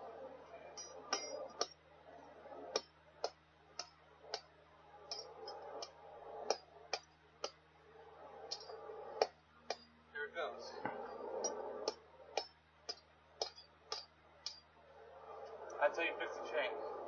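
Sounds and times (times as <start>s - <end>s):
hammer tapping metal link: 10.9s - 14.7s.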